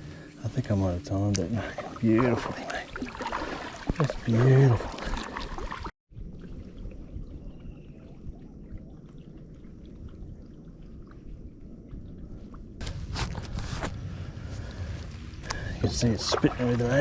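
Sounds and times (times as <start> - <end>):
paddle splashes: 1.6 - 5.9, 16.1 - 17.0
low steady rumble: 6.1 - 17.0.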